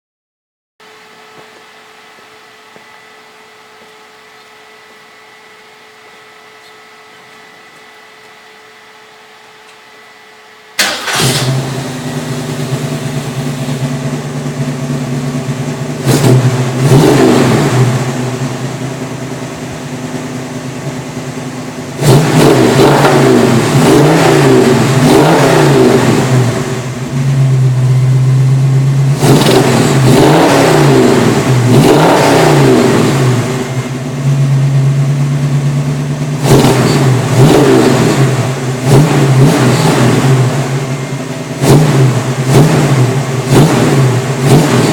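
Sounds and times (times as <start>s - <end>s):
car engine starting and revving: 10.8s - 44.9s.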